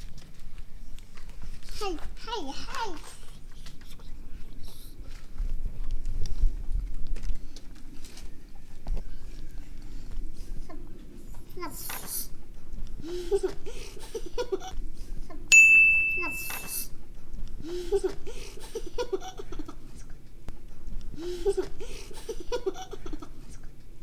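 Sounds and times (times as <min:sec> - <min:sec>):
bright ding chime: 0:15.5 - 0:16.9.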